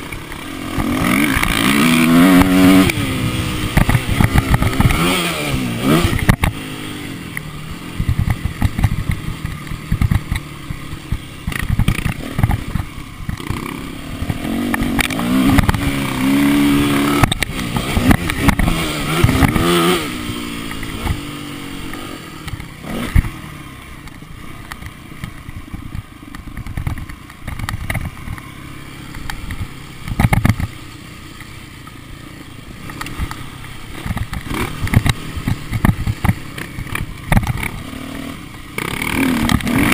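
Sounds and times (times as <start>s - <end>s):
motocross bike engine revving: 0.0s - 26.1s, 27.0s - 39.9s
knocks and clatter: 29.5s - 30.7s.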